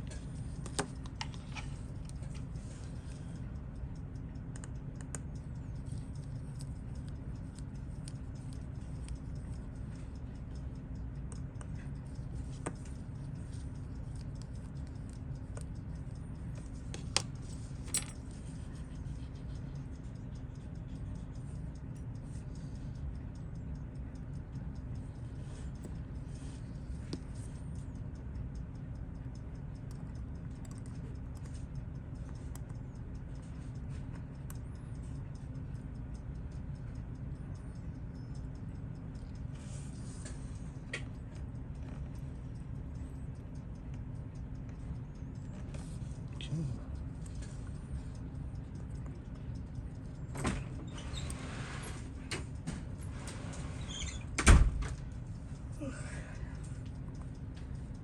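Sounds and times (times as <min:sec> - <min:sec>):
steady low hum: 0:00.0 - 0:58.0
watchmaker's tools ticking and clicking: 0:00.0 - 0:58.0
sharp clicks: 0:00.1 - 0:58.0.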